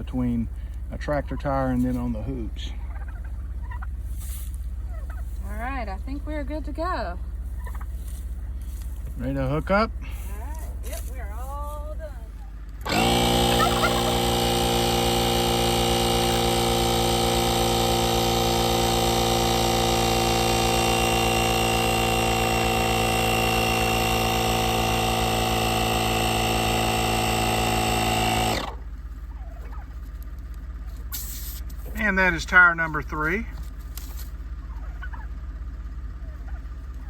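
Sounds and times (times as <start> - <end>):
electric air compressor running: 12.8 - 28.9.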